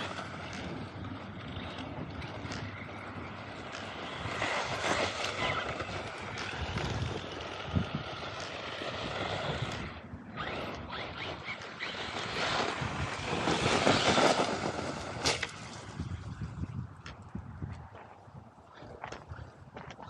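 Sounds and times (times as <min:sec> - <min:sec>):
toy truck motor whining: 0:00.0 - 0:15.4
tyres rumbling on gravel: 0:00.0 - 0:20.0.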